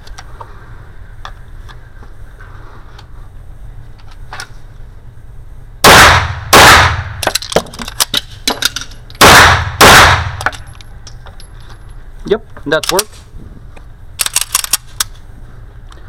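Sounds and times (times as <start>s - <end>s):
pistol shots ringing: 5.8s - 7.3s, 9.2s - 10.5s
small clicks and clinks: 10.4s - 12.0s.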